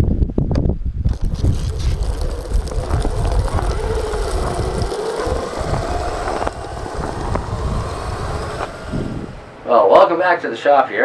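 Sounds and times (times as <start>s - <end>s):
vehicle motor rumbling: 1.1s - 9.7s
faint motor whine: 1.1s - 10.2s.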